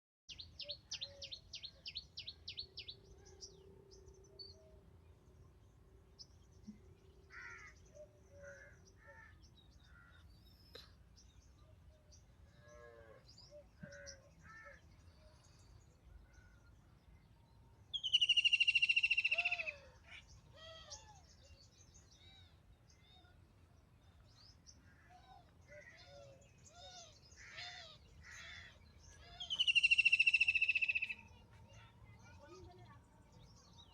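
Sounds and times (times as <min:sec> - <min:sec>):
faint bird chirps: 0:17.4 - 0:23.4, 0:24.2 - 0:33.9.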